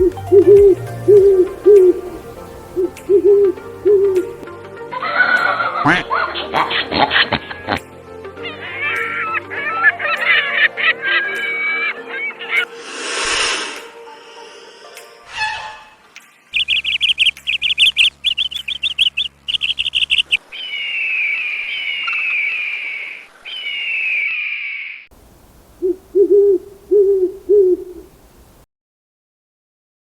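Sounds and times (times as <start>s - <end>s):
low hoots: 0.0s - 4.4s, 25.6s - 28.6s
downward sliding bird whistles: 15.3s - 16.0s, 20.6s - 25.0s
bird chirps chattering: 16.5s - 22.6s.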